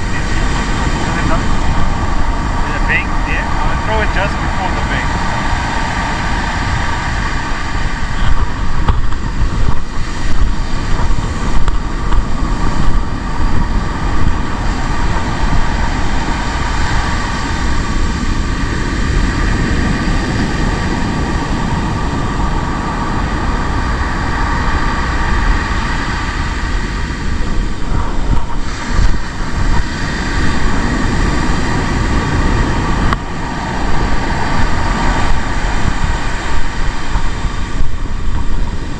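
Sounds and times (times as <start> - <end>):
surf breaking: 0.0 - 38.9
wind buffeting microphone: 0.0 - 38.9.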